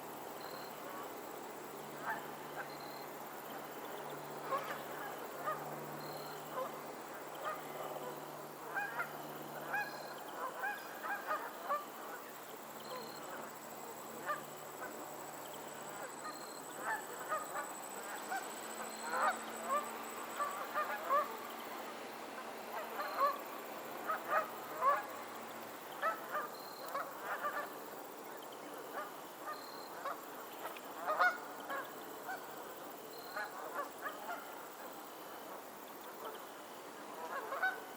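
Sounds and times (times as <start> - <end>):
geese honking: 37.2 - 37.8.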